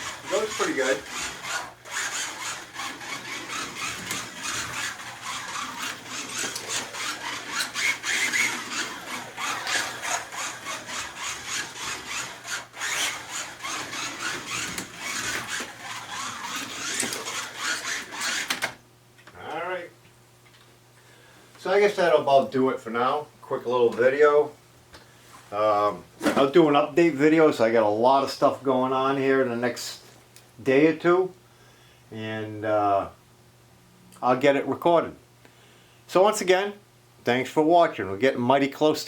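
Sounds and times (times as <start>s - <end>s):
car rubbing on track: 0.0s - 18.6s
slot car electric motor: 0.0s - 18.8s.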